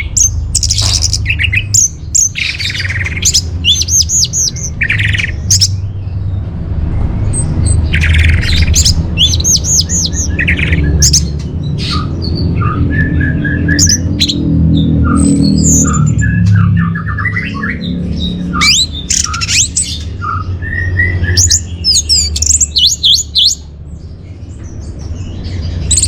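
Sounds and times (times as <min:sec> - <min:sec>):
thrush singing whistled phrases: 0:00.0 - 0:05.8, 0:07.4 - 0:23.7.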